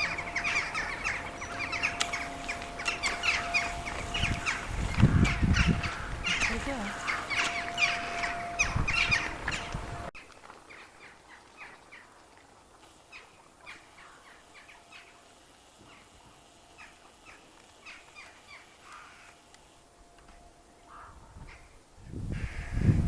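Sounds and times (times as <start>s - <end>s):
crows cawing: 0.0s - 9.7s, 17.8s - 19.4s, 20.8s - 21.6s, 22.3s - 22.9s.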